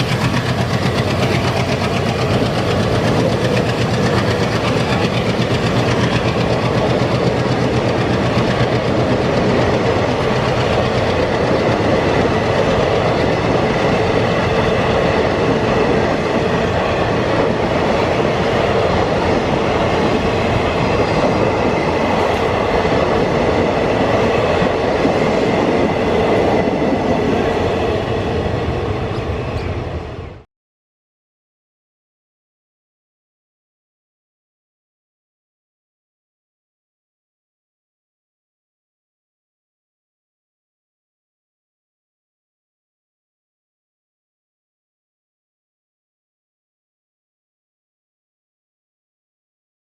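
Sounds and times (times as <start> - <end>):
train wheels rumbling and rattling: 0.0 - 30.4.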